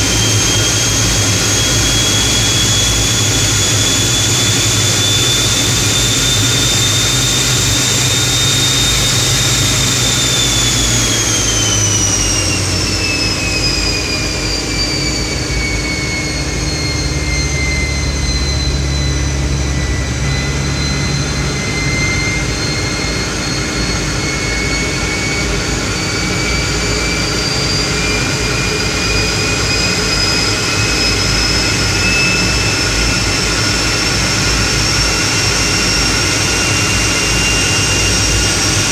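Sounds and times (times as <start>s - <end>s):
jet engine whine: 0.0s - 38.9s.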